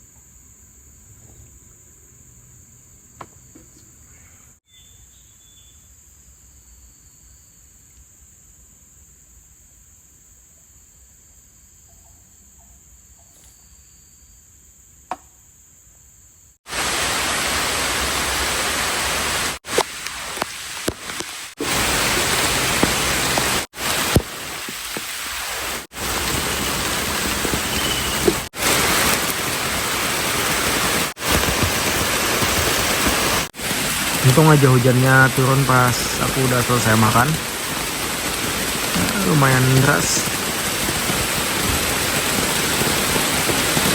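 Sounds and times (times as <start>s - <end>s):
crickets chirping: 0.0s - 18.2s, 21.5s - 43.9s
heavy rain falling: 16.7s - 43.9s.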